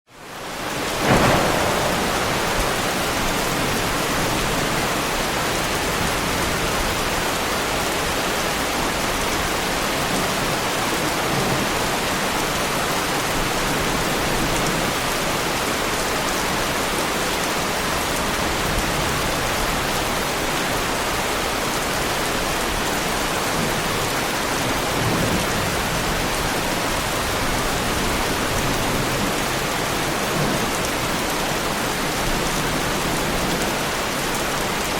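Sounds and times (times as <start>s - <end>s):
heavy rain on a car: 1.0s - 4.5s.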